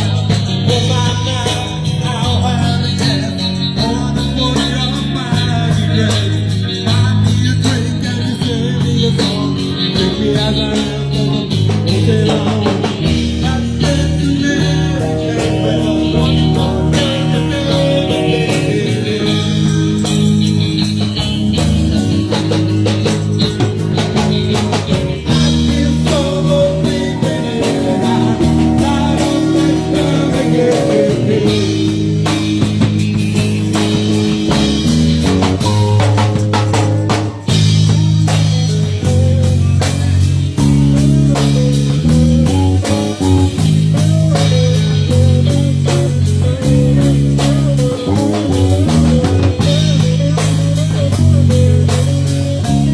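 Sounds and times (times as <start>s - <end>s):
person singing: 0.0s - 32.9s, 33.8s - 52.9s
drum kit: 0.0s - 52.9s
electric guitar: 0.0s - 52.9s.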